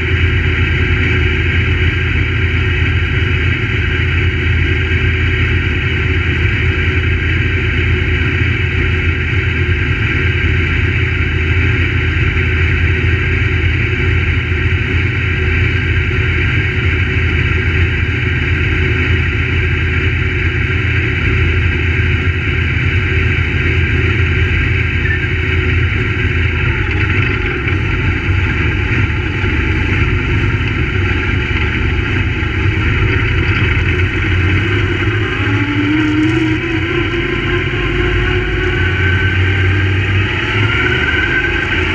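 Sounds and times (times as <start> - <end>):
race car engine running: 0.0 - 41.9.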